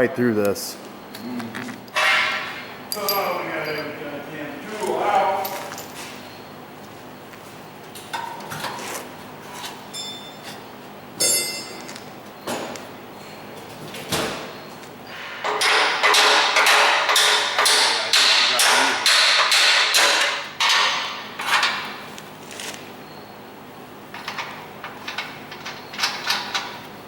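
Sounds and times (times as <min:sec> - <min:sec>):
hammer striking steel: 0:11.2 - 0:11.8, 0:15.2 - 0:21.2.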